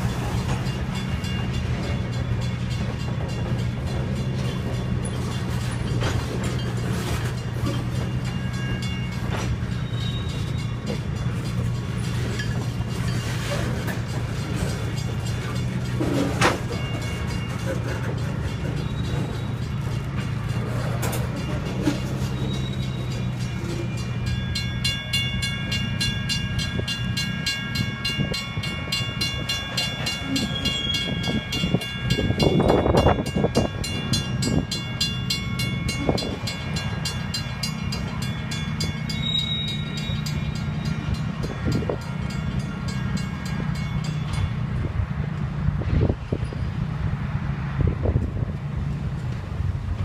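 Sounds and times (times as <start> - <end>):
train clatter: 0.0 - 50.0
train rumbling past: 0.0 - 50.0.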